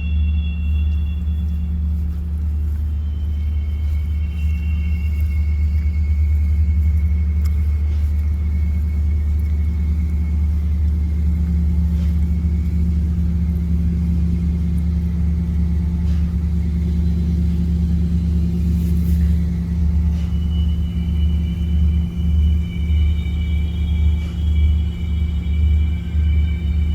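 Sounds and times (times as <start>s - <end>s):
faint high-pitched tone: 0.0s - 6.3s
low rumbling drone: 0.0s - 26.9s.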